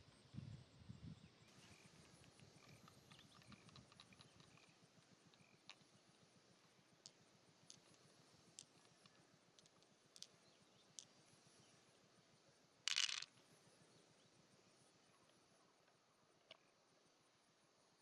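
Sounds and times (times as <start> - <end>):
clicks of small hard objects: 2.2 - 4.7, 8.6 - 10.4, 12.9 - 13.4.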